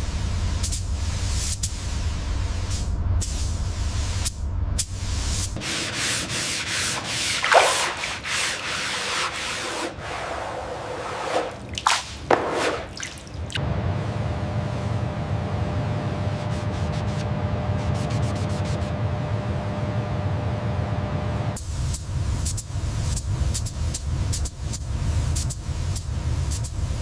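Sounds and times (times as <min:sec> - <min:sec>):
sanding strokes rasping: 0:05.6 - 0:13.0
low steady hum: 0:10.1 - 0:27.0.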